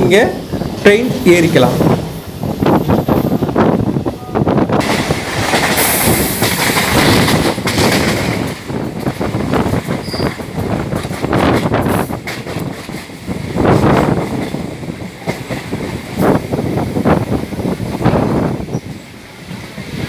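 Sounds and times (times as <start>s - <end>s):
train wheels rumbling and clattering: 0.0s - 20.0s
high wheel squeal: 10.0s - 10.4s.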